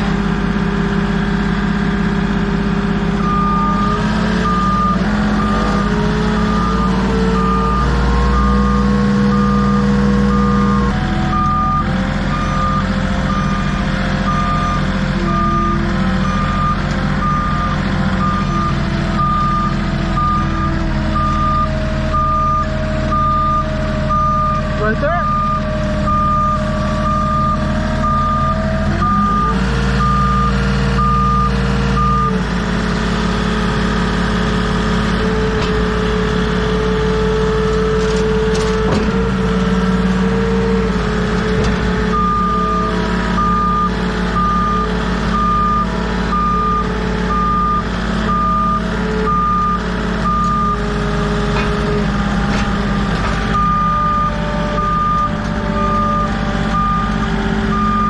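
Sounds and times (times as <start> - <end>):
engine running: 0.0 - 58.0
vehicle backup alarm beeping: 3.1 - 32.4, 42.1 - 51.0, 53.5 - 58.0.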